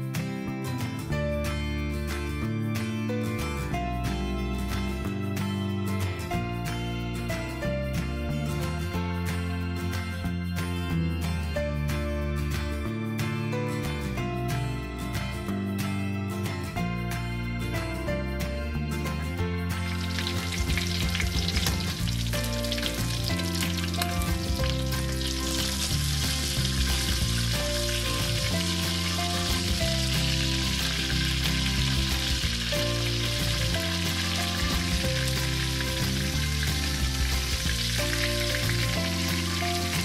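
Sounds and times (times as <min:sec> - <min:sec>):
soft background music: 0:00.0 - 0:40.0
food frying in hot oil: 0:19.9 - 0:40.0.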